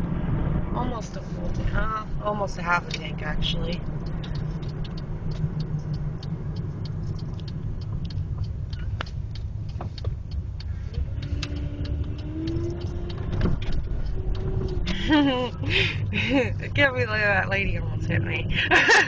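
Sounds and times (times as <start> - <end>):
car road and engine rumble: 0.0 - 19.0
light ticks: 2.8 - 17.0.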